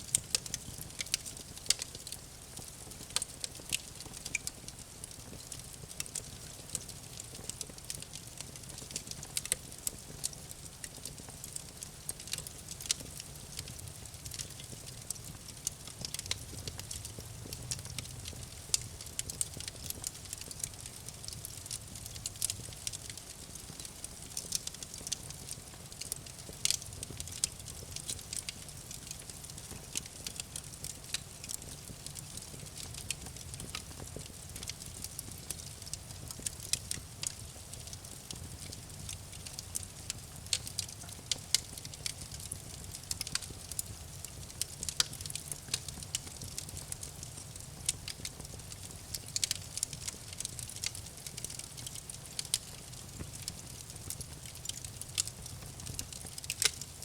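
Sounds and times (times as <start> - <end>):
campfire crackling and popping: 0.0 - 57.0
low rumble of flames: 0.0 - 57.0.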